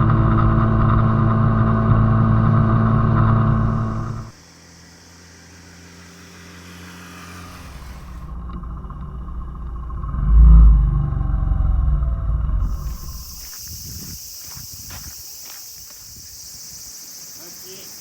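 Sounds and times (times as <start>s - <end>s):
small motorcycle engine running: 0.0s - 10.2s
low vehicle rumble: 0.0s - 14.8s.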